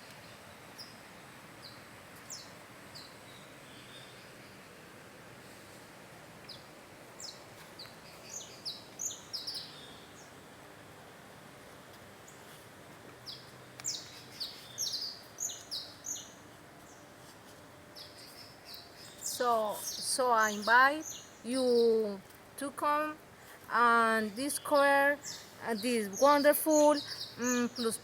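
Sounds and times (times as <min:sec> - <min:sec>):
faint background hiss: 0:00.0 - 0:28.0
bird chirping: 0:06.5 - 0:10.4, 0:13.2 - 0:17.1, 0:17.9 - 0:22.2, 0:23.7 - 0:28.0.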